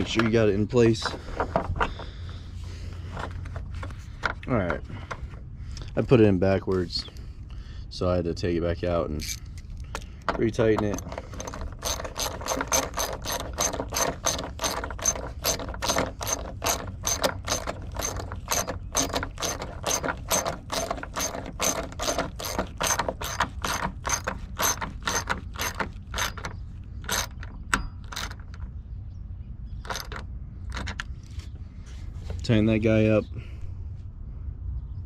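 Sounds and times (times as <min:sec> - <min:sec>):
socket ratchet wrench clicking: 0:09.2 - 0:10.1, 0:10.8 - 0:28.6.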